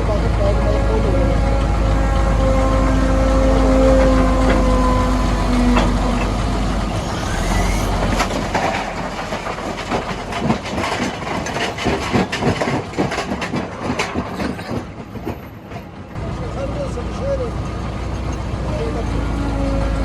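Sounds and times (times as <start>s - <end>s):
heavy engine hum: 0.0s - 20.0s
rocks clattering against steel: 8.0s - 14.8s.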